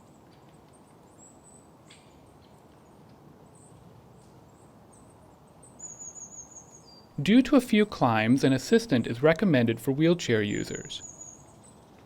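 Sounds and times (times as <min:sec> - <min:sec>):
small birds chirping: 0:03.4 - 0:07.2, 0:10.3 - 0:12.0.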